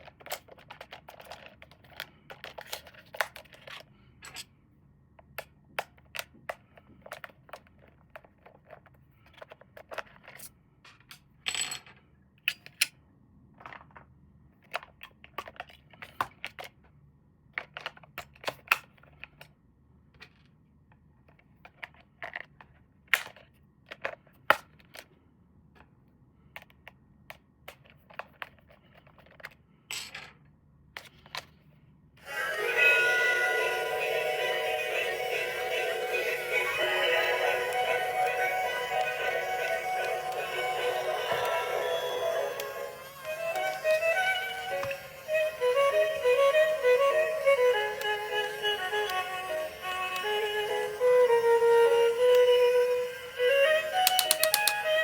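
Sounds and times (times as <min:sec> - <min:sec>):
plastic clicks and taps: 0:54.1 - 0:54.8.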